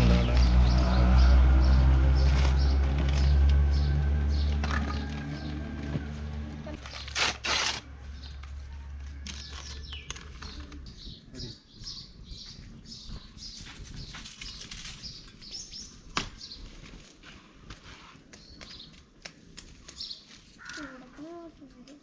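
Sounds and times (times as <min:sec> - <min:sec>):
small birds chirping: 0:09.2 - 0:17.0, 0:18.0 - 0:22.0.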